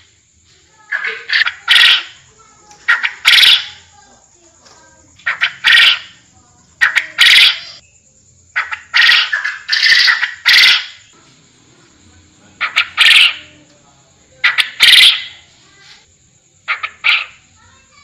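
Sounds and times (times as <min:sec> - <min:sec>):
quail calling harsh notes: 0:00.9 - 0:03.9, 0:05.2 - 0:06.2, 0:06.8 - 0:07.8, 0:08.6 - 0:11.1, 0:12.6 - 0:13.6, 0:14.4 - 0:15.5, 0:16.7 - 0:17.4.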